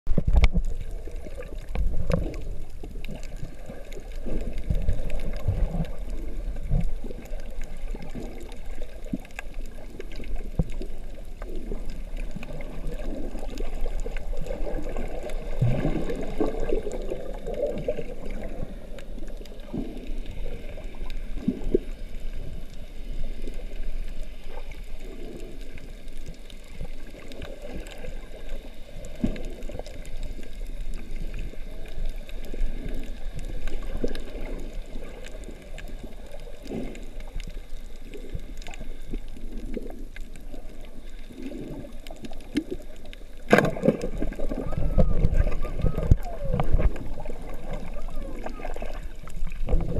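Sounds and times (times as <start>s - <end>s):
muffled water sloshing and gurgling: 0.1s - 49.9s.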